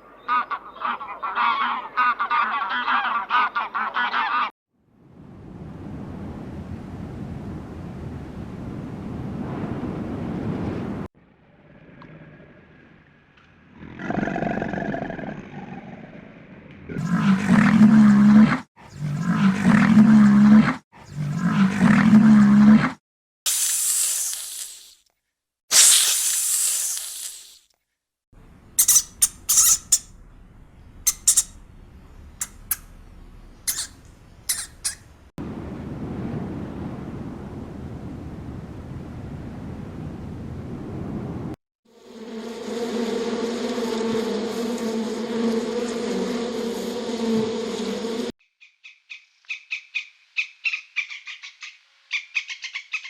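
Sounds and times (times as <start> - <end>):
farm animal calling: 0.2 - 4.5, 28.7 - 30.2, 30.8 - 35.2
wind-like rushing noise: 5.1 - 11.1
brief hiss: 23.5 - 25.0, 25.7 - 27.7
steady low rumble: 28.4 - 40.0.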